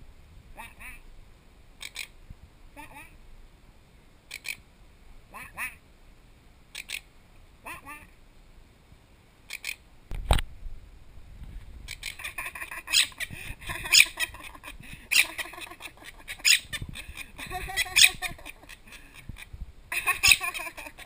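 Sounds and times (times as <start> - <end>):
parrot squawking and chattering: 0.6 - 1.0, 1.8 - 3.2, 4.3 - 4.6, 5.3 - 5.8, 6.7 - 8.2, 9.5 - 9.8, 11.9 - 21.0.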